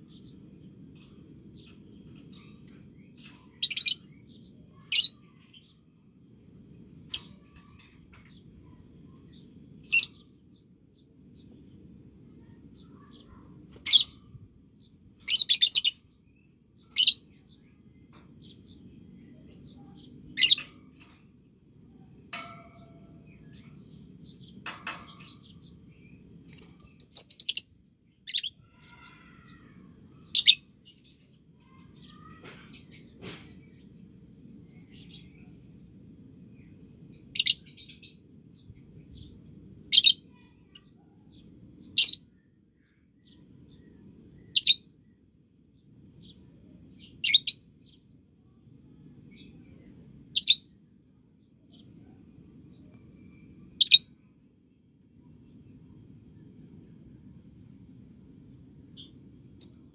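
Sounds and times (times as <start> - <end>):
faint low hum: 0.0 - 59.9
lovebird chirping: 53.4 - 54.1.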